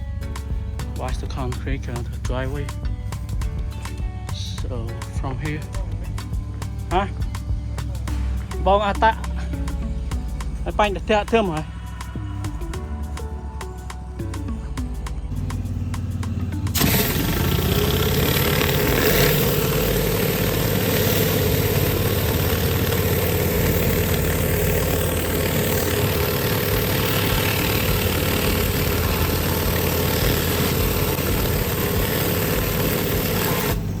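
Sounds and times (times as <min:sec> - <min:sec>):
pressure washer motor: 0:15.3 - 0:34.0.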